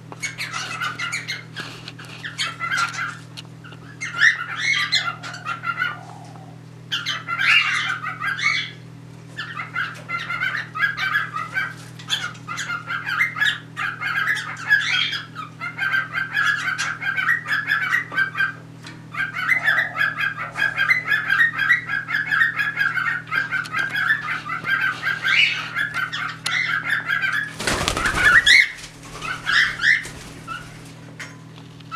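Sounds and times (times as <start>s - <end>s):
cockatiels chirping: 0.2s - 8.8s, 9.4s - 30.9s
wings flapping: 27.4s - 31.0s.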